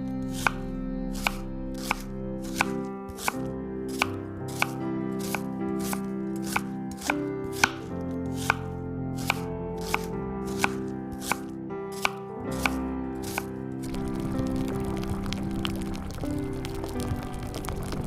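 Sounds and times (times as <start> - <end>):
background music: 0.0 - 18.0
knife chopping on cutting board: 1.2 - 13.4.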